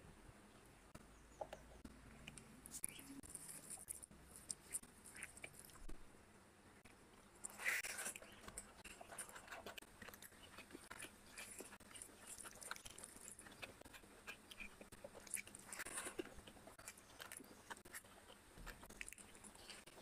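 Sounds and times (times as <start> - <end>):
close chewing with mouth clicks: 1.8 - 6.0, 6.8 - 20.0.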